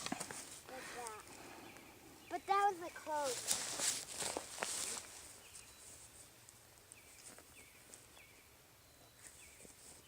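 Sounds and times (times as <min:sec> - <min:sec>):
faint bird chirps: 0:05.3 - 0:06.3.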